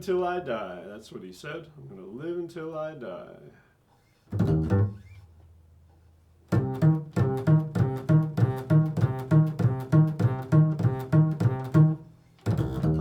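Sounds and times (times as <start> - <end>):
plucked string music: 4.4 - 5.4, 6.5 - 13.0.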